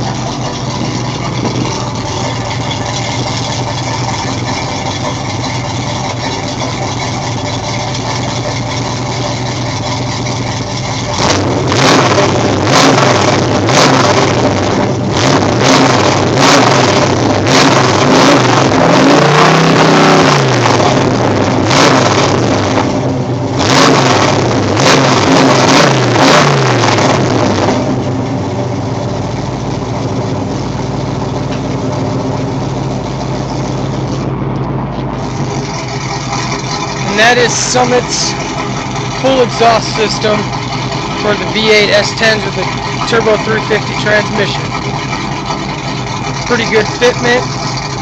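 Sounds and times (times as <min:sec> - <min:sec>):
car engine idling and revving: 0:00.0 - 0:48.0.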